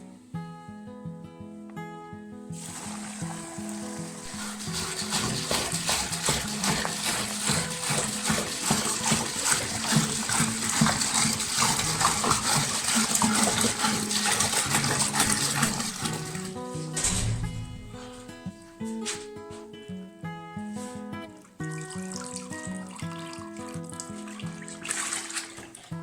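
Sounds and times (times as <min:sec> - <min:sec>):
liquid splashing and pouring: 0:02.6 - 0:18.8, 0:21.4 - 0:26.0.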